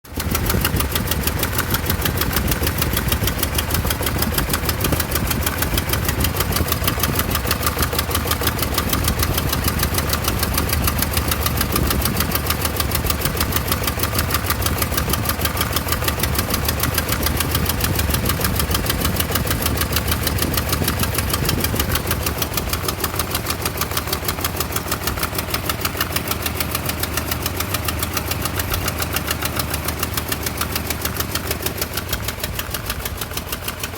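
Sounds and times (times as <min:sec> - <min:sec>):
engine idling roughly: 0:00.0 - 0:33.9.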